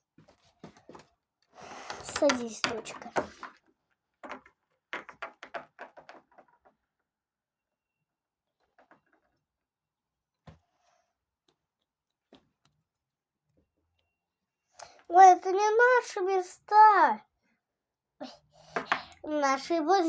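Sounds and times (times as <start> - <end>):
plastic toy figures clicking: 1.9 - 3.5.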